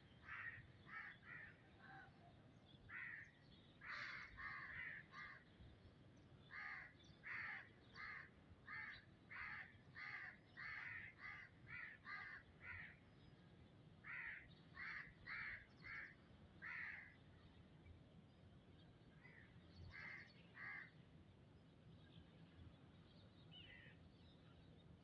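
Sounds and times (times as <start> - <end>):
bird cawing: 0.2 - 2.1, 2.9 - 5.5, 6.5 - 13.0, 14.0 - 17.1, 19.2 - 20.9.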